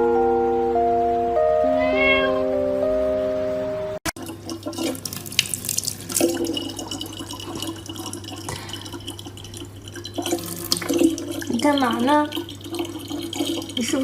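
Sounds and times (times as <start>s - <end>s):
tap water running into sink: 4.1s - 14.0s
small water splashes: 4.2s - 14.0s.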